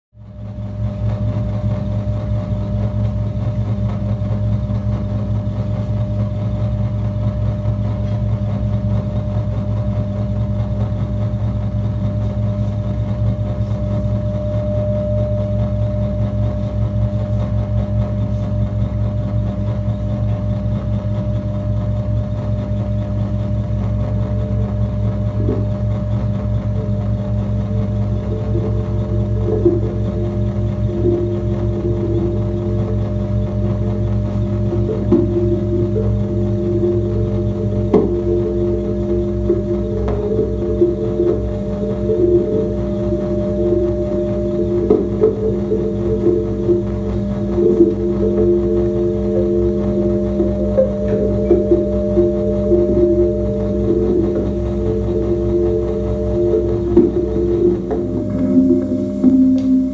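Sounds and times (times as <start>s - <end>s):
pulsing low drone music: 0.7s - 59.9s
thin steady tone: 13.5s - 17.4s, 23.4s - 59.9s
faint higher tones: 13.6s - 17.0s, 24.1s - 59.9s.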